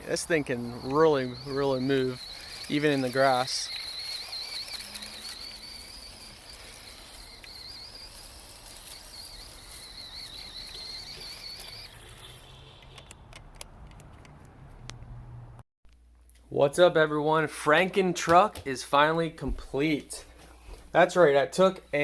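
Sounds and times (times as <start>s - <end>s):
rc truck motor whining: 0.0s - 13.7s
sharp clicks: 0.7s - 15.0s.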